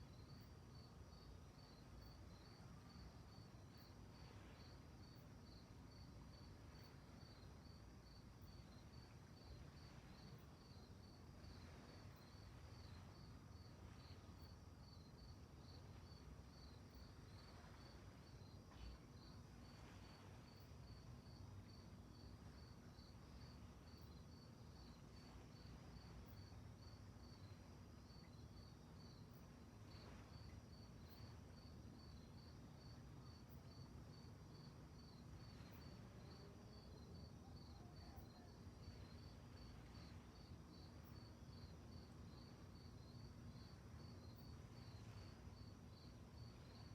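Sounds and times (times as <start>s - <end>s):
crickets chirping: 0.0s - 46.9s.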